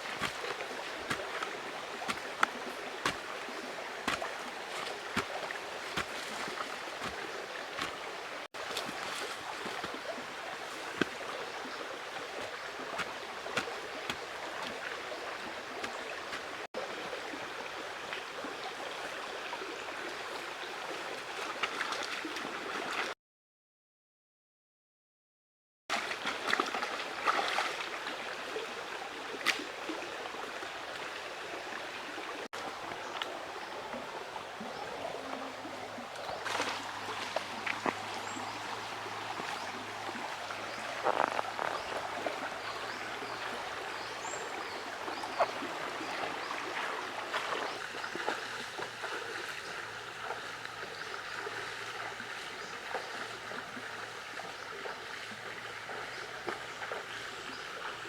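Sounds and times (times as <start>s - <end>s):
knocks and splashes: 0.0s - 16.7s, 25.9s - 28.1s, 35.2s - 53.6s
river water running: 0.0s - 23.1s, 25.9s - 58.0s.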